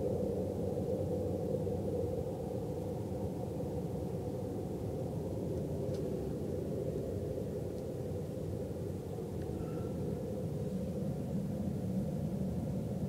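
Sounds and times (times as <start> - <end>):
low drone from the sky: 0.0 - 13.0.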